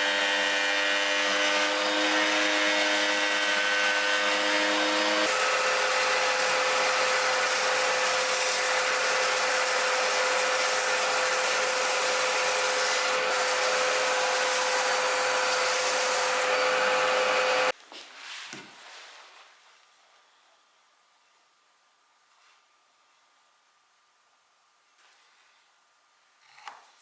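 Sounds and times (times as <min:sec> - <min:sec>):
electric power tool cutting wood: 0:00.0 - 0:17.7.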